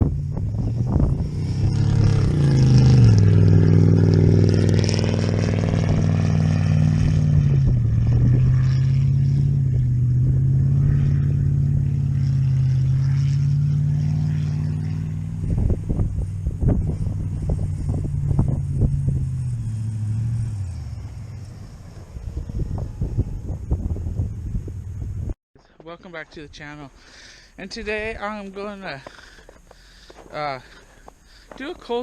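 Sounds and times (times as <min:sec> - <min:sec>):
car engine idling: 0:28.5 - 0:32.0.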